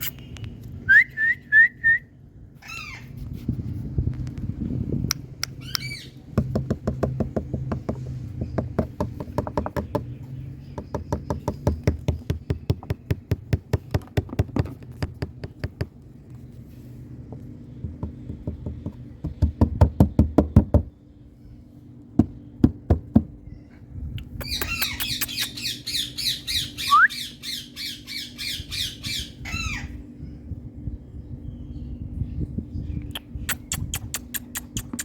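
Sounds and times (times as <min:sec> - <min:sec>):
steady low hum: 0:00.0 - 0:35.0
parrot squawk: 0:02.6 - 0:03.2, 0:24.4 - 0:30.0.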